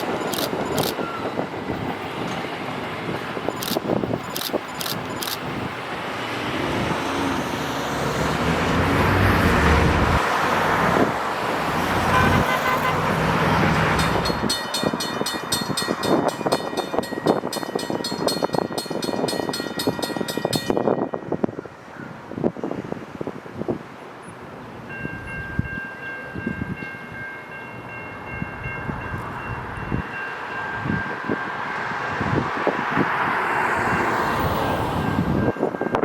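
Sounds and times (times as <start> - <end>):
train rushing past: 0.0 - 21.9, 27.8 - 36.0
train horn blast: 11.9 - 14.2
rapid ringing bell: 14.0 - 21.2.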